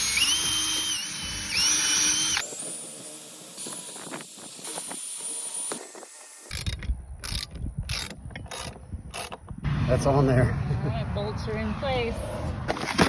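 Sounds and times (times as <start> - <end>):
power drill whine: 0.0 - 6.8.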